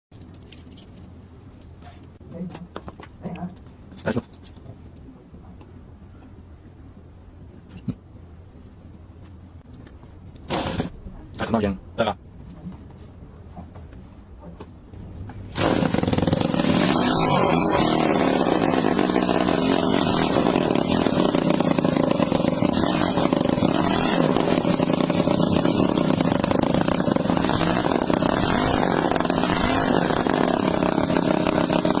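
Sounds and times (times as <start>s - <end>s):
miniature engine running fast: 15.6s - 32.0s.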